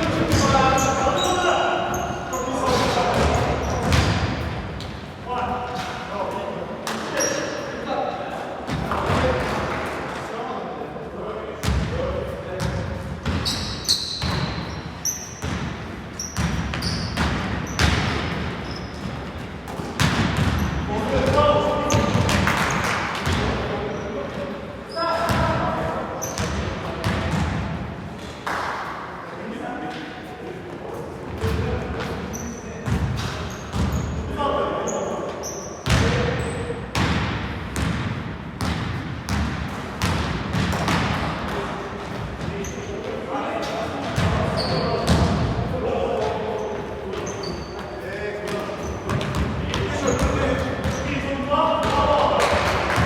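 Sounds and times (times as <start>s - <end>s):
shoe squeaks on floor: 0.3s - 4.0s, 7.1s - 7.7s, 13.3s - 19.4s, 26.2s - 26.6s, 32.2s - 32.8s, 33.4s - 34.2s, 34.8s - 35.8s, 36.4s - 36.8s, 44.4s - 45.2s, 46.6s - 51.2s
basketball bouncing indoors: 2.6s - 5.0s, 11.6s - 12.0s, 12.6s - 23.6s, 25.3s - 27.8s, 32.8s - 34.2s, 35.8s - 42.5s, 44.1s - 45.7s, 48.5s - 51.0s.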